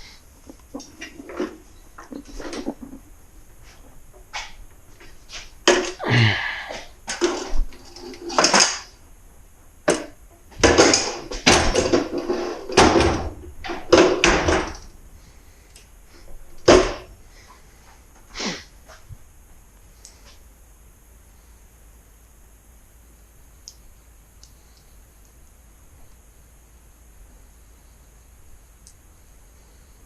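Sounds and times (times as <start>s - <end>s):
tools and parts clunking: 0.5s - 3.0s, 3.6s - 6.0s, 7.1s - 8.9s, 9.8s - 14.9s.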